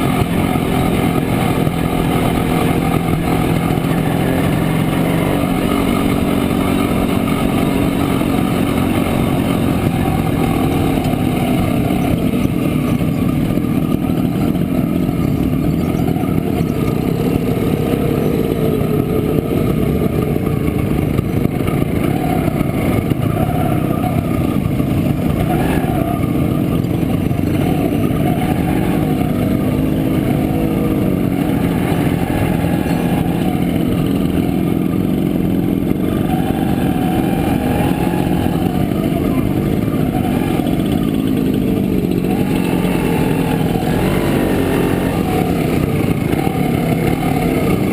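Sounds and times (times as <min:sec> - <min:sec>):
two-stroke motorcycle engine: 0:00.0 - 0:47.9.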